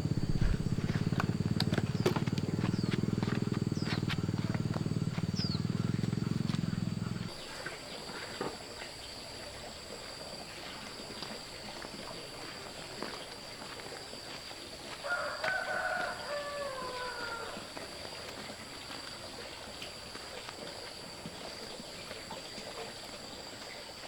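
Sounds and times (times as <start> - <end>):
rooster crowing: 15.0 - 17.8.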